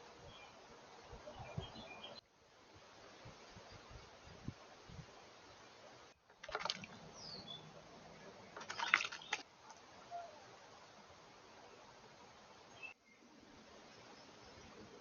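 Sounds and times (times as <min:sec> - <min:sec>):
faint hiss: 0:00.0 - 0:06.3, 0:06.9 - 0:15.0
bird chirp: 0:00.2 - 0:02.2, 0:06.9 - 0:09.4
birds fluttering and splashing: 0:03.2 - 0:11.3.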